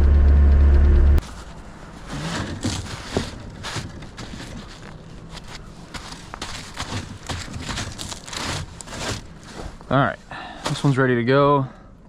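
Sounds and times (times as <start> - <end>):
engine idling: 0.0 - 1.2
footsteps: 1.2 - 10.0.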